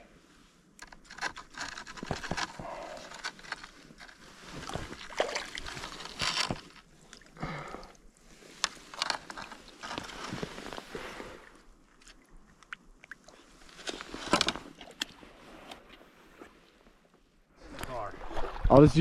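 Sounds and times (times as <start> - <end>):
water splashing in river: 4.9 - 5.9, 17.6 - 18.9.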